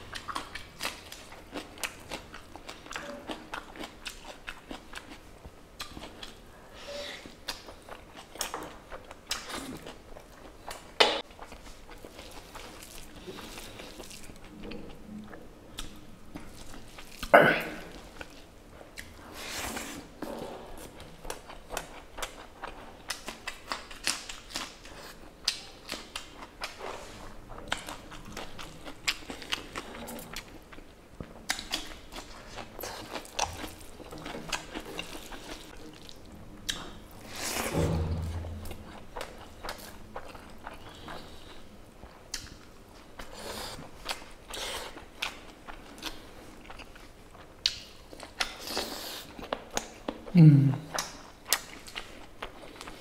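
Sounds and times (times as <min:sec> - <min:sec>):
chewing and biting: 0:20.2 - 0:37.4.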